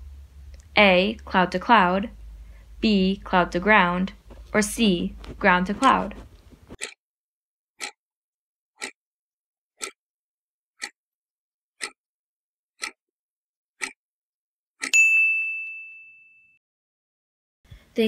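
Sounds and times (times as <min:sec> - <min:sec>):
clock ticking: 0:00.2 - 0:07.0, 0:07.8 - 0:08.0, 0:08.8 - 0:09.0, 0:09.8 - 0:10.0, 0:10.8 - 0:11.0, 0:11.8 - 0:12.0, 0:12.8 - 0:13.0, 0:13.8 - 0:14.0
bright bell ding: 0:14.9 - 0:16.6.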